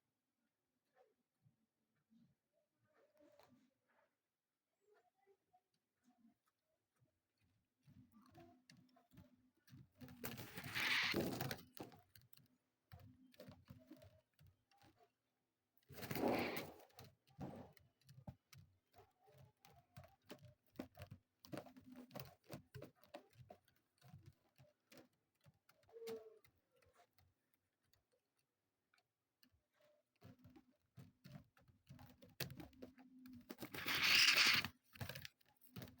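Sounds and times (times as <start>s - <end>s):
light taps and scratches: 6.2s - 36.0s
rustling flurry: 33.5s - 34.7s.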